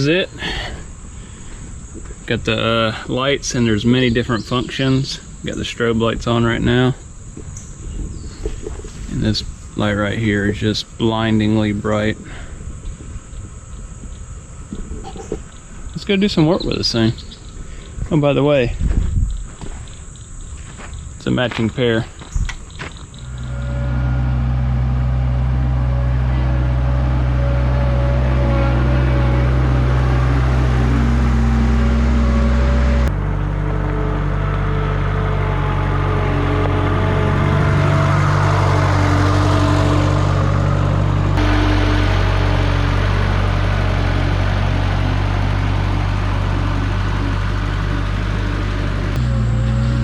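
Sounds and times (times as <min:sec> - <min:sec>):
skid steer engine running: 0:00.0 - 0:17.3, 0:20.7 - 0:50.0.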